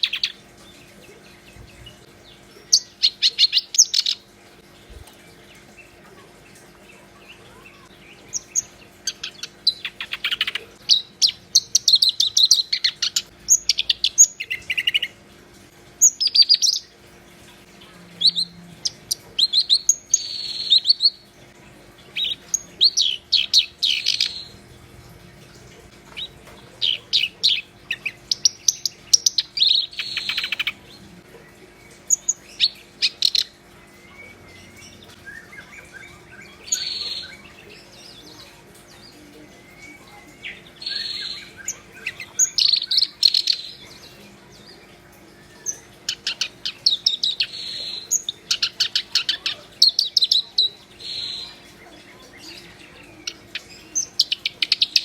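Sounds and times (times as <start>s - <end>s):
reed warbler singing: 22.0s - 24.6s, 26.2s - 30.9s, 32.1s - 44.5s, 45.7s - 55.0s.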